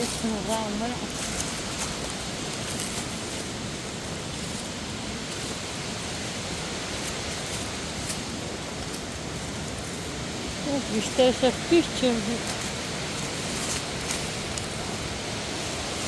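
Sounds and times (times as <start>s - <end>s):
water flowing over rocks: 0.0s - 16.0s
waterfall rushing: 0.0s - 16.0s.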